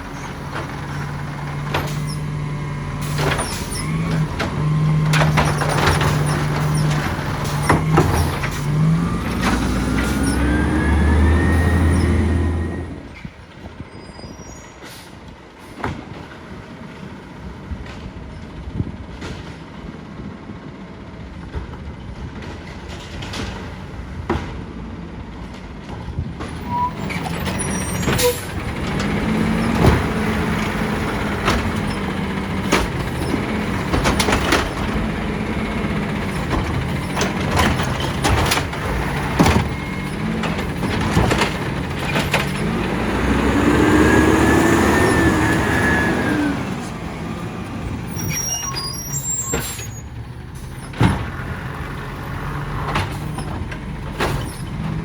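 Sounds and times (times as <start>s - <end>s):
diesel engine revving: 0.0s - 13.6s, 26.4s - 55.0s.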